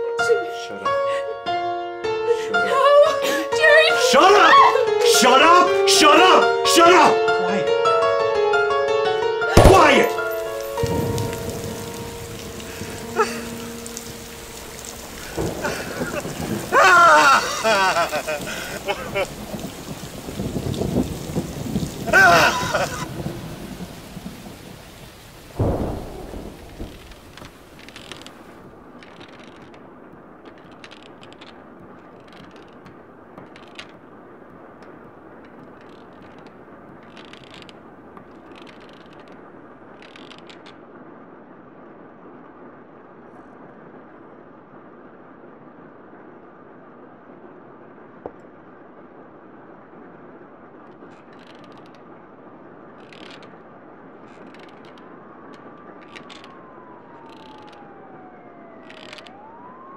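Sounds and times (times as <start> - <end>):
heavy rain: 0.0 - 42.9, 48.7 - 59.9
loud thunderclap: 9.5 - 29.0.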